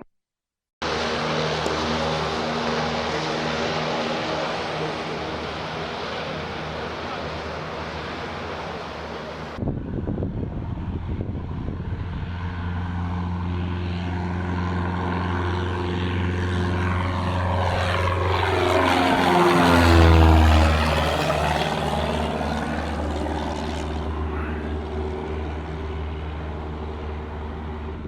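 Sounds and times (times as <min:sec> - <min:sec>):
propeller aircraft engine: 0:00.8 - 0:28.0
wind noise: 0:08.6 - 0:13.0.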